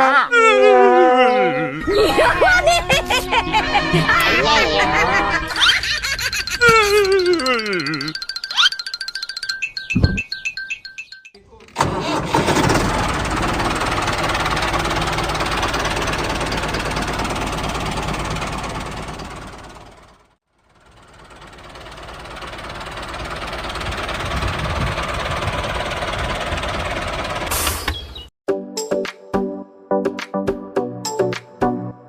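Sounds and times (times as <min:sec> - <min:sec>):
tractor knocking rumble: 0:08.2 - 0:28.1.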